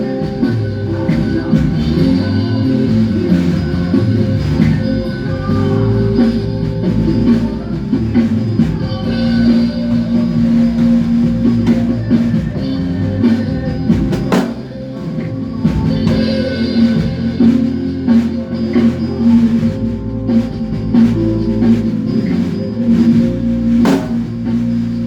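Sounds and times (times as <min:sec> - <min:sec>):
bass guitar low notes: 0:00.0 - 0:25.0
guitar: 0:00.0 - 0:25.0
drum kit hits: 0:08.5 - 0:14.9, 0:23.8 - 0:24.7.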